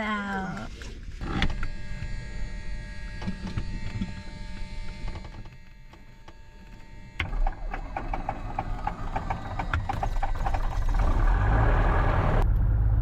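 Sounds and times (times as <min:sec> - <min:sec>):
intercom electrical hum and whine: 0:00.0 - 0:11.3
aircraft engine starting: 0:07.2 - 0:12.4.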